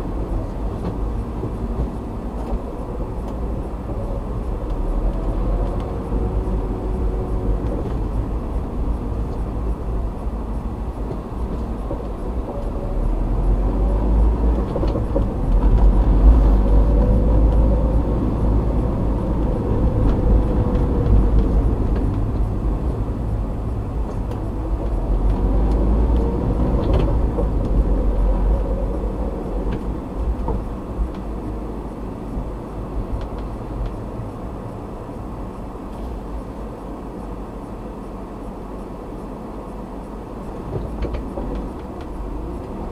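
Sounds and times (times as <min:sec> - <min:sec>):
faint engine hum: 0:00.0 - 0:42.9
tyre and engine rumble: 0:00.0 - 0:42.9.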